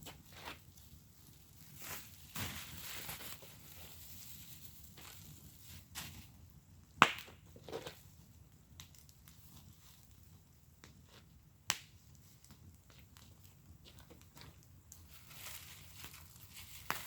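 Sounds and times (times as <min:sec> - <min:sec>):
sharp pops from fire: 0:00.0 - 0:15.2, 0:16.0 - 0:17.0
wood fire crackling: 0:00.0 - 0:17.0.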